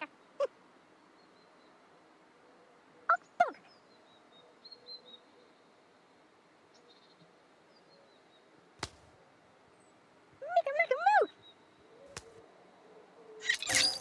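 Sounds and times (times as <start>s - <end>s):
faint high bird twittering: 13.3s - 14.0s
sharp squeaky calls: 13.4s - 14.0s.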